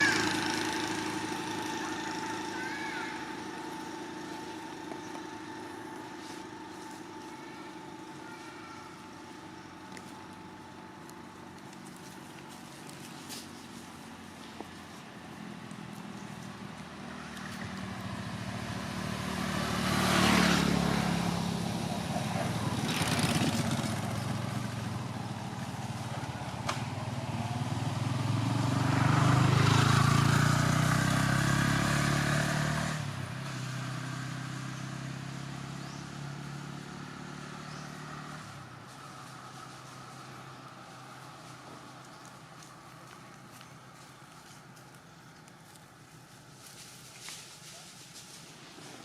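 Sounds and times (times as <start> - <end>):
vehicles passing on road: 0.0 - 49.0.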